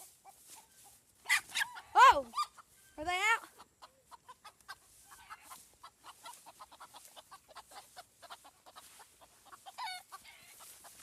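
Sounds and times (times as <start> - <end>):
roosters clucking: 0.0 - 11.0
rooster squawk: 1.2 - 2.6, 9.6 - 10.7.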